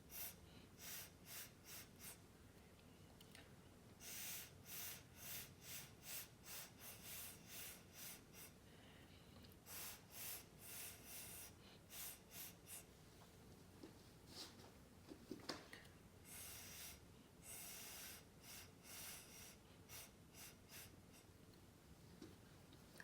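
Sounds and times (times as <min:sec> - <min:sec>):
short puffs of breath: 0:00.0 - 0:02.3, 0:04.0 - 0:13.0, 0:16.2 - 0:21.4.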